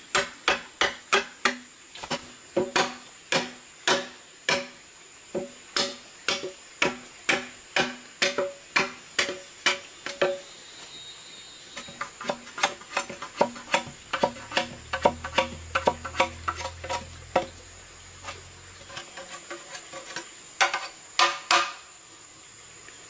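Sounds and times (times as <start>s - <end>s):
blade striking wood: 0.1s - 4.8s, 5.4s - 10.3s, 12.2s - 17.6s.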